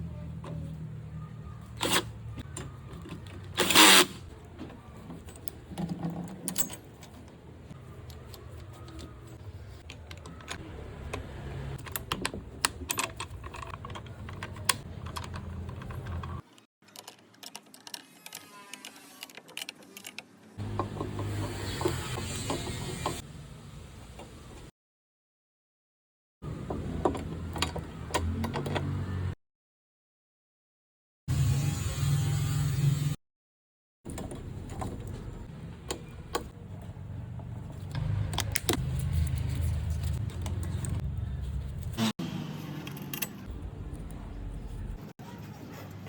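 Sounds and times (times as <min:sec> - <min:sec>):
metal clicks and knocks: 0:05.0 - 0:17.1.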